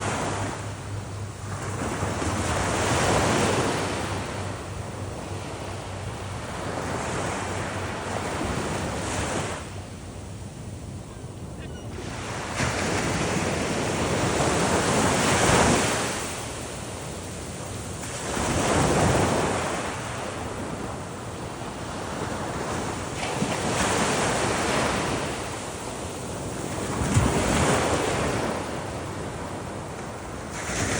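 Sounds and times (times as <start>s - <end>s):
waves breaking on beach: 0.0s - 9.8s, 11.5s - 30.9s
wind buffeting microphone: 0.0s - 30.9s.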